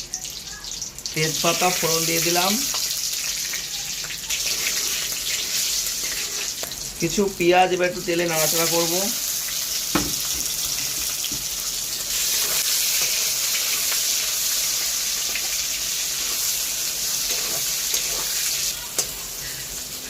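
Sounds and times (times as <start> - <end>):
onions sizzling in hot oil: 0.0 - 20.0
sharp knock: 9.9 - 10.2.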